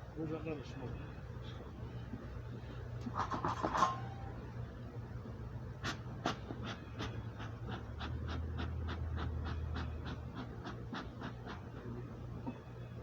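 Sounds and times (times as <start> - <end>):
low steady hum: 0.0 - 13.0
smoker bellows puffing air: 2.2 - 4.4, 5.7 - 12.6.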